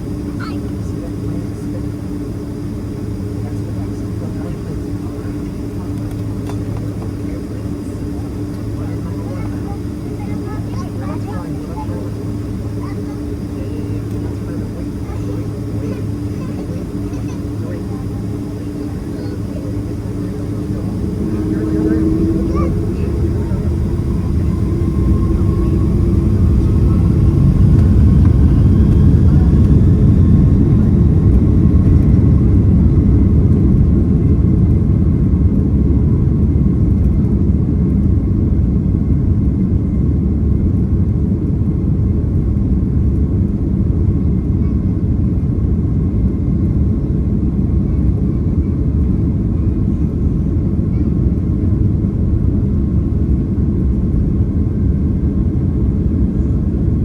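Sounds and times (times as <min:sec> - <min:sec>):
rising engine whine: 0:00.0 - 0:38.2
jet engines rumbling: 0:00.0 - 0:57.0.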